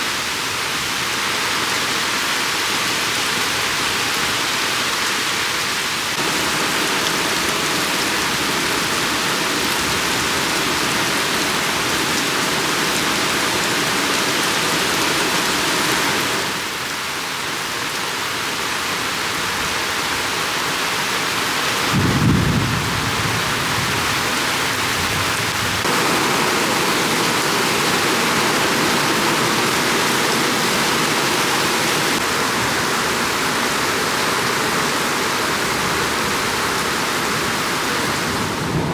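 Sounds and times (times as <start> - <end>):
heavy rain pouring: 0.0 - 38.9
low rumble of thunder: 21.9 - 27.4, 38.5 - 38.9.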